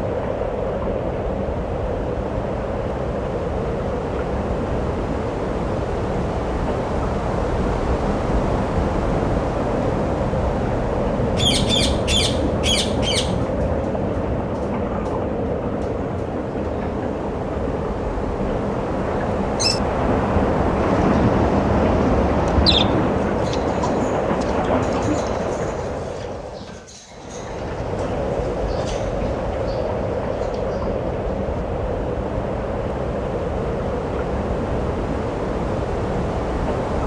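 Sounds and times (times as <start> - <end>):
bird chirping: 11.4 - 13.5, 19.6 - 19.8.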